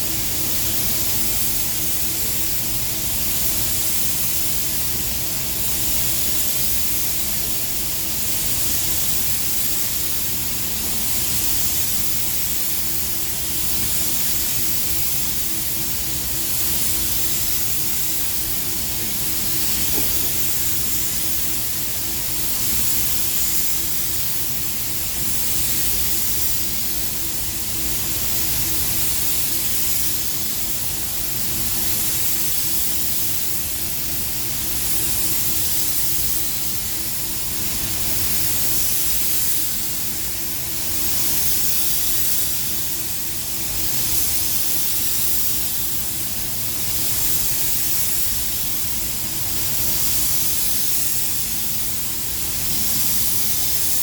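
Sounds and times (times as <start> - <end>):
paint spray gun hissing: 16.5 - 24.2.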